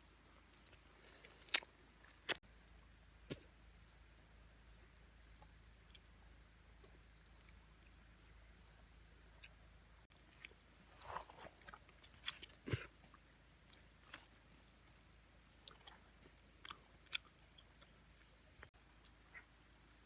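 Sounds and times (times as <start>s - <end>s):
person chewing food: 0.5s - 2.4s, 9.4s - 18.3s.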